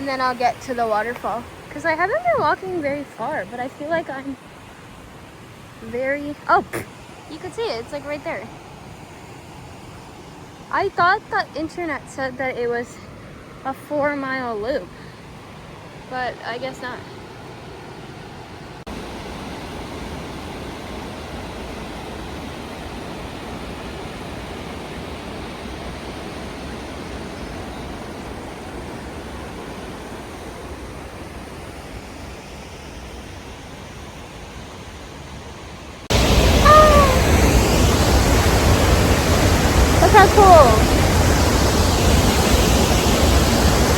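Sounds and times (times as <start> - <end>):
waterfall rushing: 0.0 - 10.0, 36.1 - 43.9.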